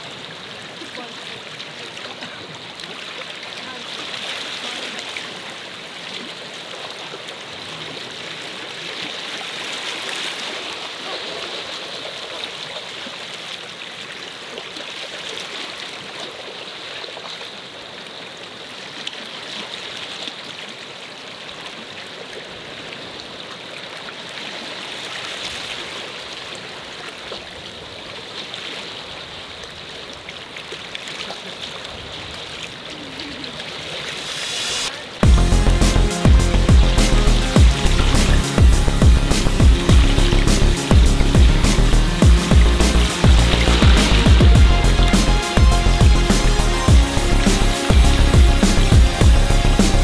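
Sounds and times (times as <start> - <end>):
water running and trickling: 35.7 - 46.2.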